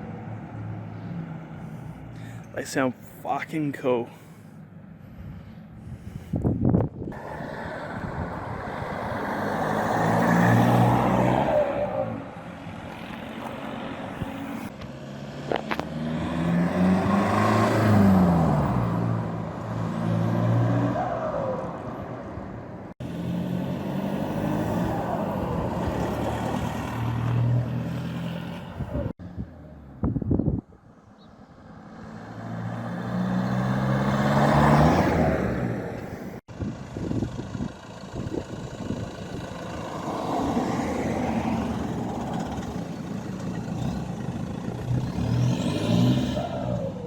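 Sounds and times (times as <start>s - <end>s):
diesel engine revving: 7.0s - 22.0s, 22.9s - 30.0s, 31.5s - 47.0s.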